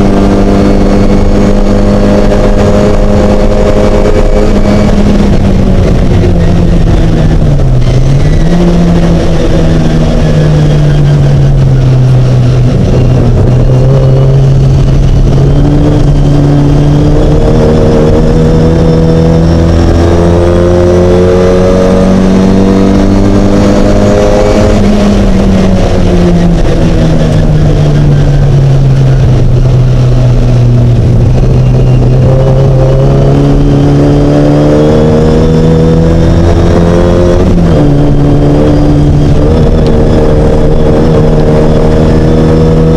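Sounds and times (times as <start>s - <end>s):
race car engine revving: 0.0s - 42.9s.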